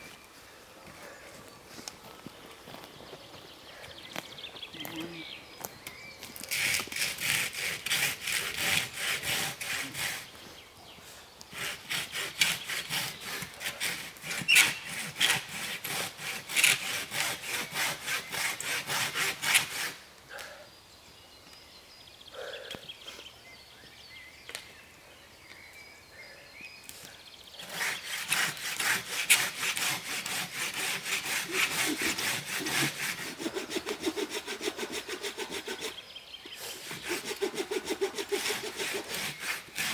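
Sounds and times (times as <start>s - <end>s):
hand saw cutting wood: 6.4s - 10.4s, 11.5s - 20.0s, 27.6s - 39.9s.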